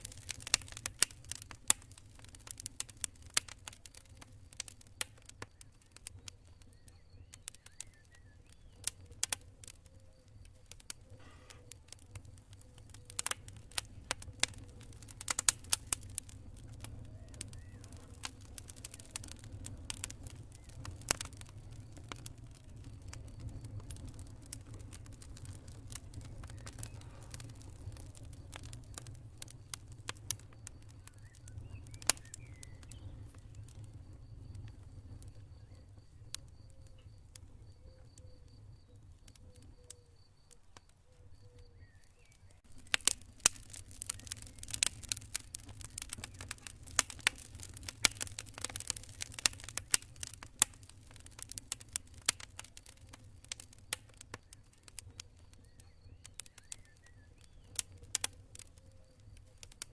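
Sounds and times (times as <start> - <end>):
campfire crackling and popping: 0.0 - 59.9
faint high chirping: 3.9 - 14.0, 30.4 - 46.9.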